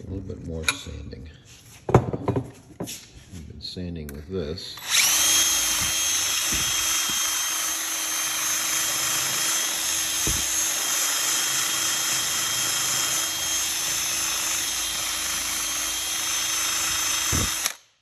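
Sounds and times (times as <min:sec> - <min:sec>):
power sander running: 0:04.8 - 0:17.8.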